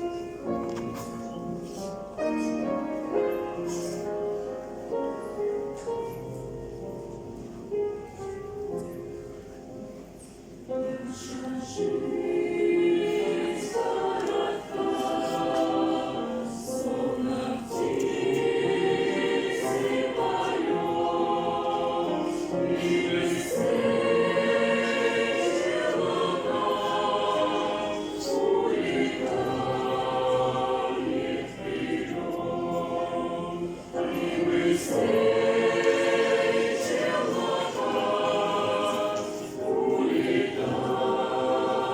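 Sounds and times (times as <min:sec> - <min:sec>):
choir singing: 0:10.8 - 0:41.9.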